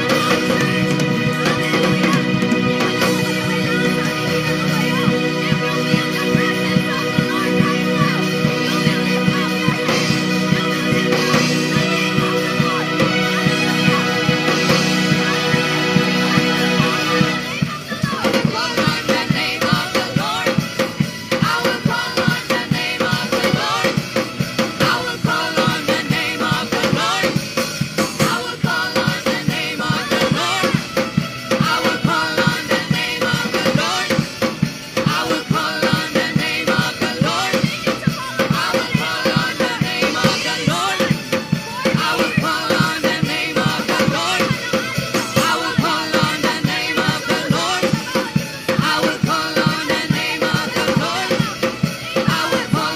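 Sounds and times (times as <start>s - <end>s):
drum kit beat: 0.0s - 52.9s
people singing: 0.0s - 52.9s
worship band music: 0.0s - 52.9s.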